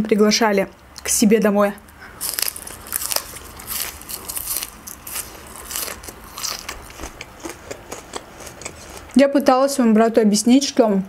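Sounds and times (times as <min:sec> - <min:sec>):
green onion crunching: 0:01.9 - 0:09.5.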